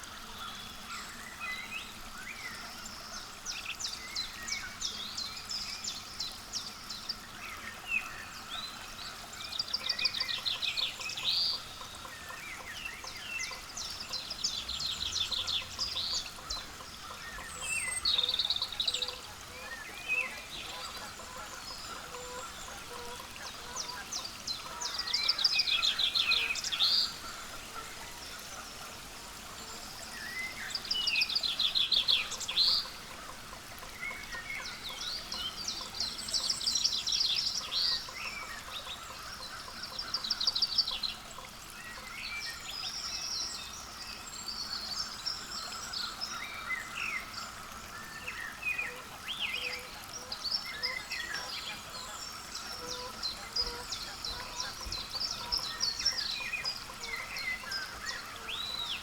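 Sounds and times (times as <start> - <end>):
songbirds trilling: 44.4 - 59.0.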